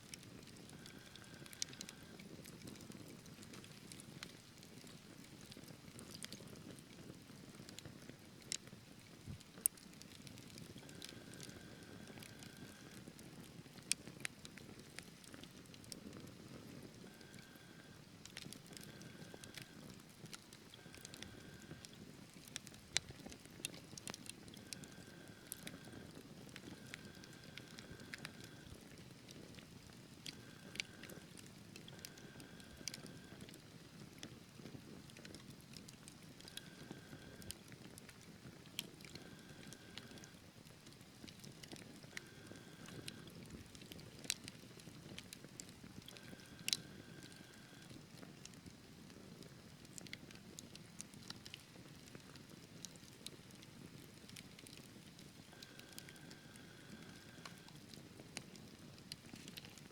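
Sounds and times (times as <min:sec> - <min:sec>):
faint whistling from fire: 0:00.0 - 0:04.9, 0:09.4 - 0:40.5, 0:41.3 - 0:49.5, 0:52.2 - 0:59.1
low rumble of flames: 0:00.0 - 0:59.6
logs crackling and popping: 0:00.0 - 0:59.9.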